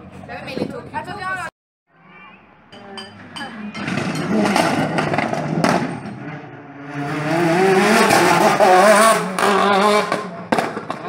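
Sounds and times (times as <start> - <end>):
rally car engine revving: 3.6 - 11.0.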